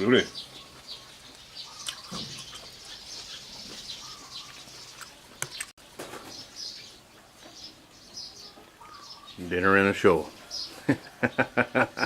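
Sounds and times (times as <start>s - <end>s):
small birds chirping: 0.0s - 12.0s
sharp clicks: 5.0s - 5.8s.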